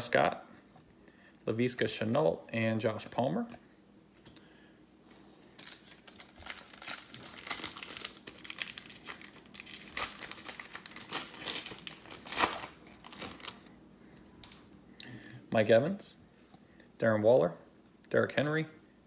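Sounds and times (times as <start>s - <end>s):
plastic wrapper crinkling and tearing: 5.6s - 13.7s.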